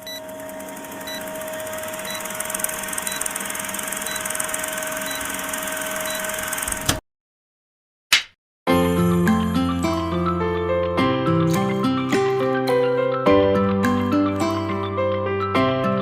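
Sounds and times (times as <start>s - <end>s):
machine humming and hissing: 0.0s - 6.9s.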